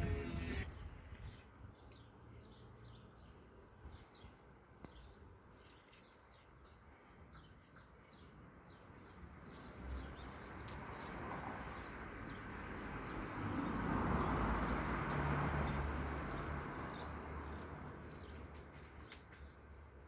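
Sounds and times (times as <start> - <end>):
birds chirping: 0.0 - 0.8.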